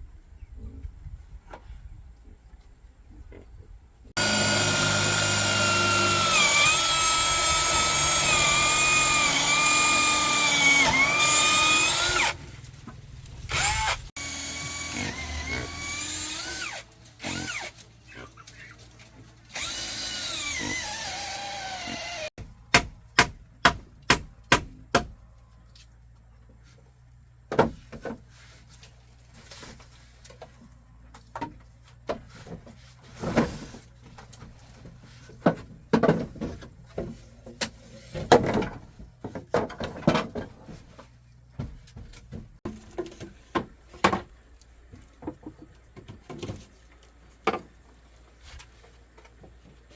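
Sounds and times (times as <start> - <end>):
power drill whine: 4.2 - 12.4, 13.5 - 17.7, 19.5 - 22.3.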